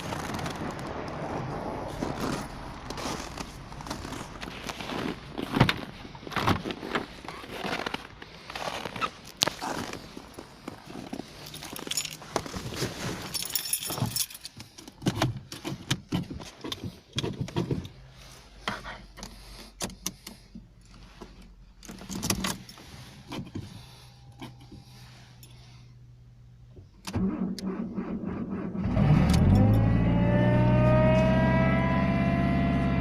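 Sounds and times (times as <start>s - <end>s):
car keys jangling: 10.9s - 18.0s, 21.8s - 25.6s
keys clicking and knocking: 11.4s - 12.4s, 13.3s - 17.9s.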